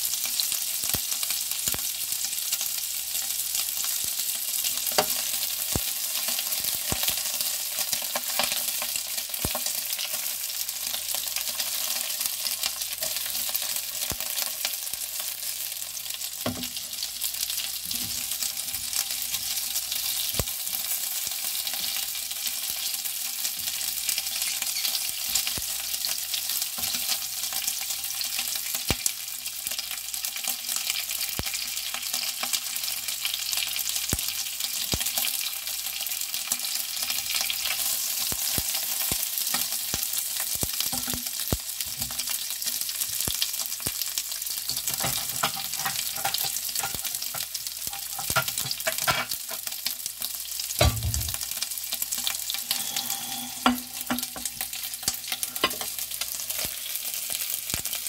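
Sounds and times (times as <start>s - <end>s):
sausages sizzling in hot oil: 0.0s - 58.0s
spatula stirring in a pan: 44.7s - 49.9s.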